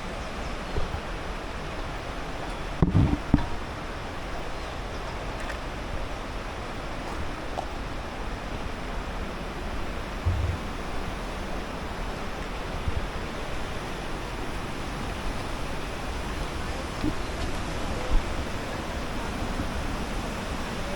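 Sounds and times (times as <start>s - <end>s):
fast-flowing river water: 0.0s - 20.9s
low thump: 10.2s - 10.8s.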